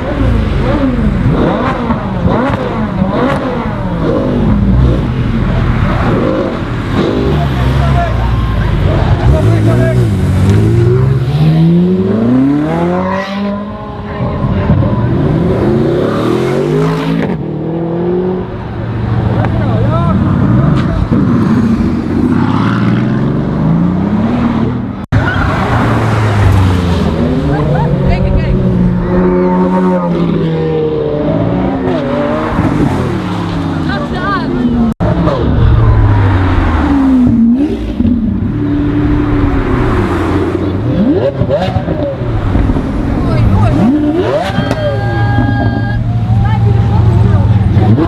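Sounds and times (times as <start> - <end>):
sports car engines revving: 0.0 - 48.0.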